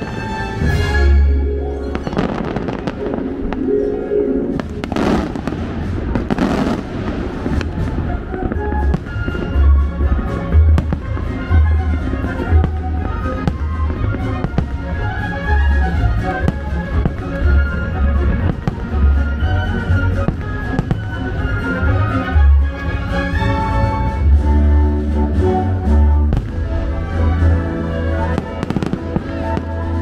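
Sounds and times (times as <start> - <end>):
music playing: 0.0 - 30.0
fireworks bangs and booms: 1.9 - 3.6, 4.6 - 22.9, 26.3 - 27.6, 28.2 - 30.0.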